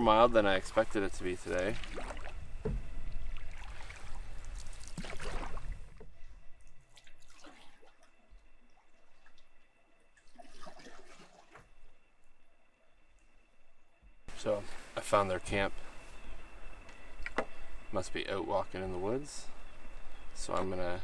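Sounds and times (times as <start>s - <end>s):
paddle strokes in water: 0.6s - 6.2s.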